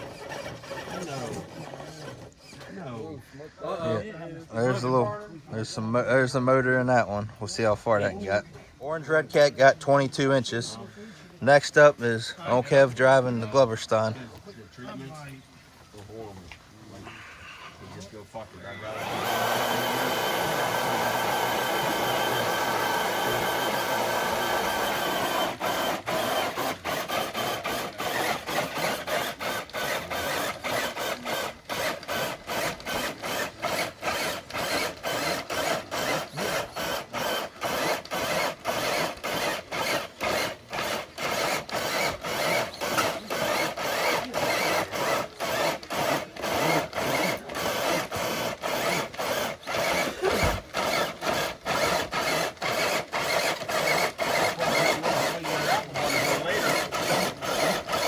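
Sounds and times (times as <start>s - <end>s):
electric motor and gears whining: 0.0s - 2.4s, 18.4s - 58.0s.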